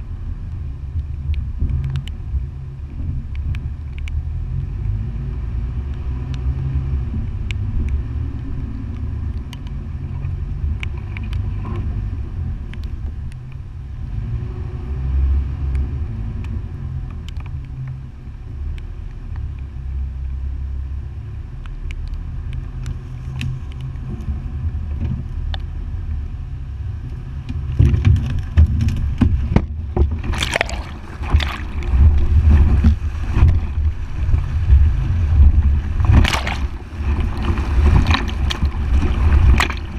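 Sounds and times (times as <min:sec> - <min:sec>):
engine low rumble: 0:00.0 - 0:39.9
water splashing against vehicle: 0:00.0 - 0:39.9
small ticks: 0:01.0 - 0:02.2, 0:15.7 - 0:18.1, 0:21.6 - 0:24.3.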